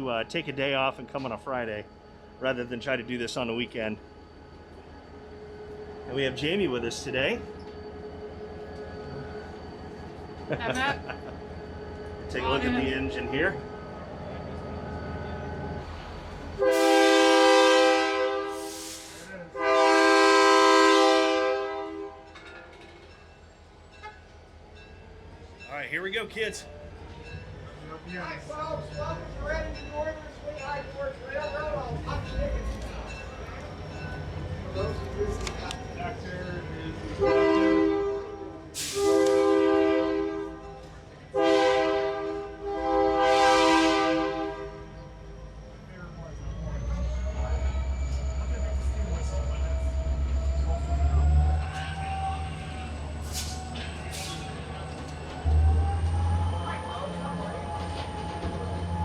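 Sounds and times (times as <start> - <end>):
locomotive air horn blasts: 16.6 - 22.3, 37.2 - 40.6, 41.3 - 44.8.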